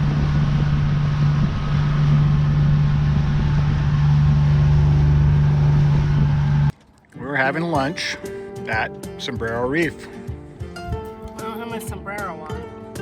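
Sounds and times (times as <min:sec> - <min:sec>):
outboard motor drone: 0:00.0 - 0:06.7.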